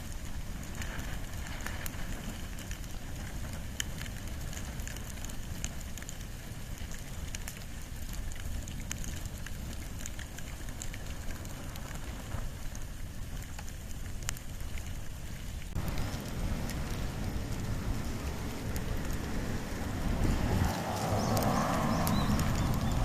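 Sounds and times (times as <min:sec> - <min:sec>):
fire crackling and popping: 0:00.0 - 0:23.0
fire hissing and rumbling: 0:00.0 - 0:23.0.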